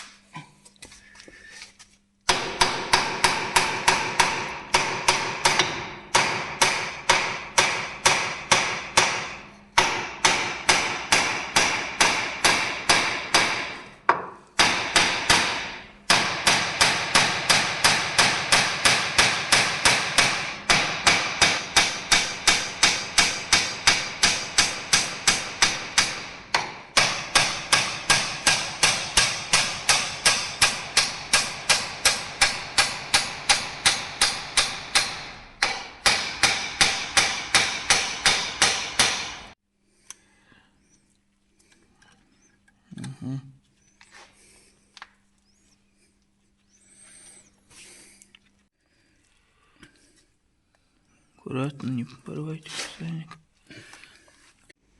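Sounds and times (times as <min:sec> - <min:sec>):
hammer striking steel: 0:02.3 - 0:39.6.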